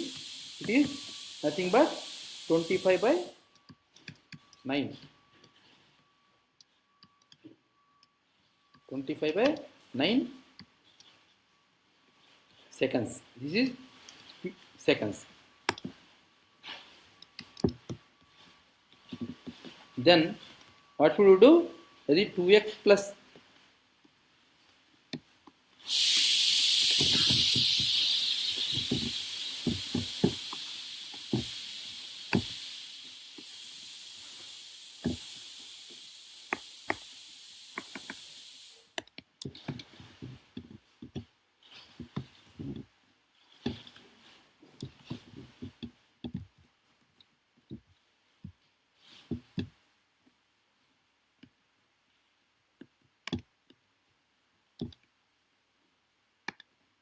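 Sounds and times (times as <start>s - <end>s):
loud hiss: 0.0s - 3.5s, 25.8s - 39.0s.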